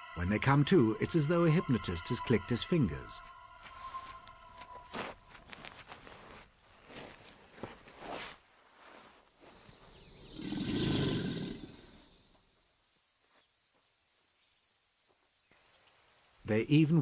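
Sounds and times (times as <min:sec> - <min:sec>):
insect chirping: 0:00.0 - 0:16.4.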